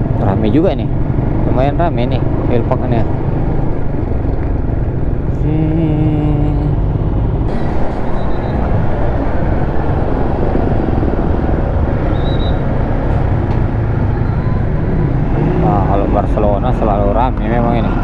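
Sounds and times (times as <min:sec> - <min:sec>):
road traffic rumble: 0:00.0 - 0:18.0
vehicle engine noise: 0:00.0 - 0:18.0
short pitched sound: 0:07.5 - 0:14.8.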